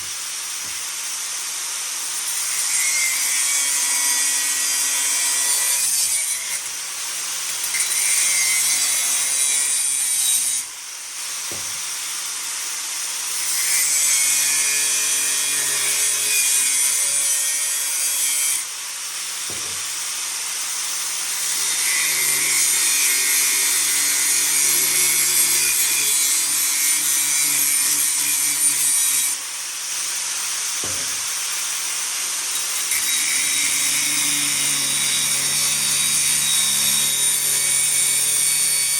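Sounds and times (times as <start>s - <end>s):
angle grinder grinding steel pipe: 2.3s - 10.8s, 21.3s - 31.4s, 32.4s - 38.9s.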